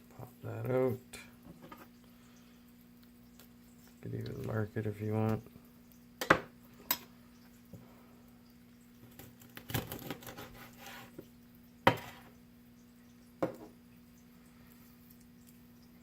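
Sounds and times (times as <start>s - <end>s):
light taps and scraping: 1.4s - 2.0s.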